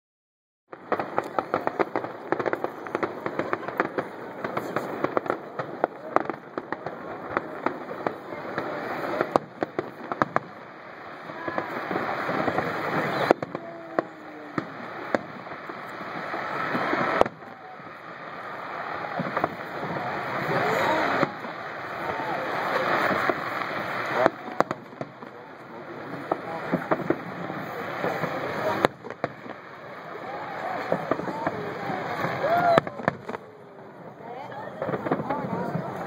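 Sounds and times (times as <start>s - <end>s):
fireworks crackling and banging: 0.7s - 36.0s.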